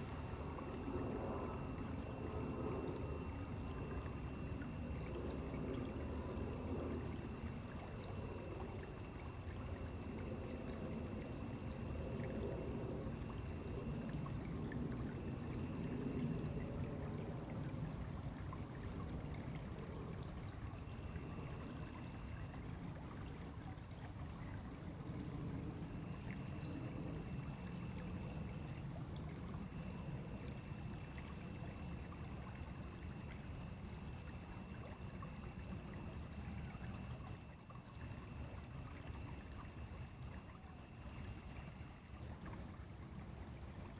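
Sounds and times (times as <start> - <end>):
stream flowing: 0.0 - 43.9
high steady buzz: 3.6 - 14.2.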